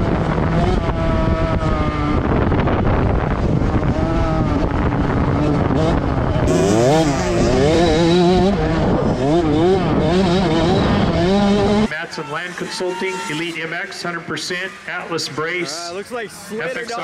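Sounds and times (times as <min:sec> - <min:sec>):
dirt bike revving: 0:00.0 - 0:11.9
dirt bike engines running: 0:00.0 - 0:17.0.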